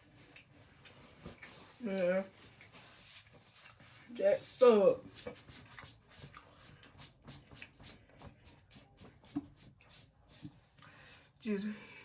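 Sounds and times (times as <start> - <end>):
chewing and wet mouth clicks: 0.3 - 1.7.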